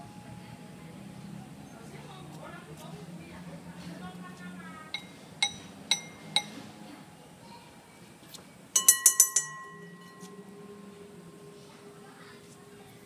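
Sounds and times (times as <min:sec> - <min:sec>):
glass object taps ringing: 0:05.0 - 0:06.6, 0:08.8 - 0:10.5.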